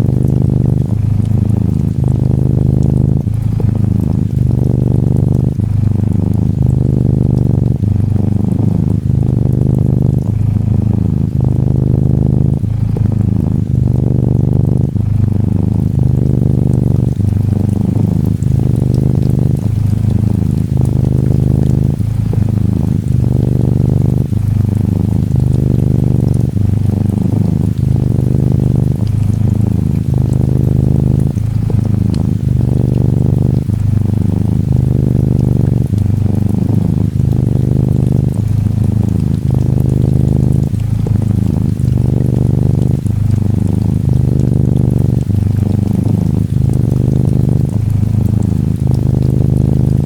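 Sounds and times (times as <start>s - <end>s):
gentle rain hiss: 0.0s - 50.0s
kitten purring: 0.0s - 50.0s.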